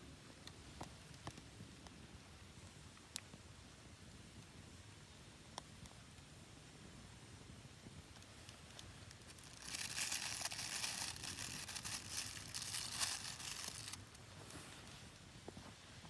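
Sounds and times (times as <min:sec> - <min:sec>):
crinkling and crumpling: 0:08.1 - 0:16.0.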